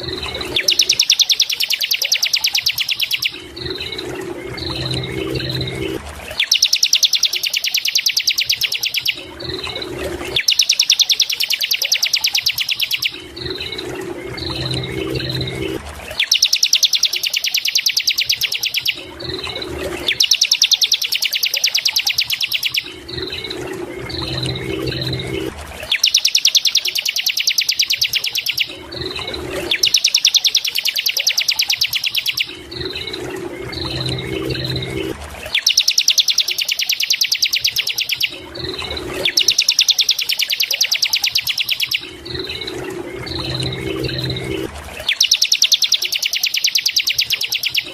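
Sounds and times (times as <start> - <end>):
bird singing fast trills: 0.0 - 47.9
low hum: 3.3 - 6.4, 13.1 - 16.2, 22.8 - 25.8, 32.4 - 35.5, 42.0 - 45.1.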